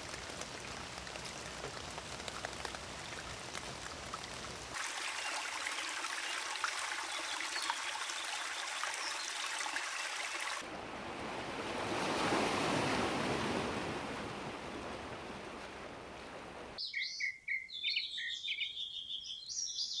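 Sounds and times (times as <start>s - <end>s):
water pattering: 0.0s - 10.6s
water rushing: 0.0s - 16.8s
small bird chirping: 16.8s - 20.0s.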